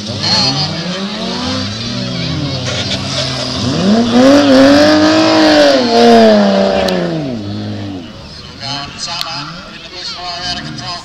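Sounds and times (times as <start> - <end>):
car engine revving hard: 0.0 - 8.2
cars idling: 0.0 - 11.0.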